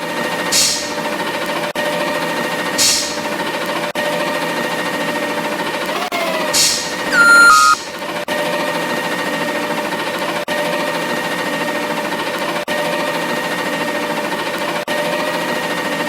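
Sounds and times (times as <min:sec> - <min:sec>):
squeal falling in pitch: 0:06.0 - 0:07.8.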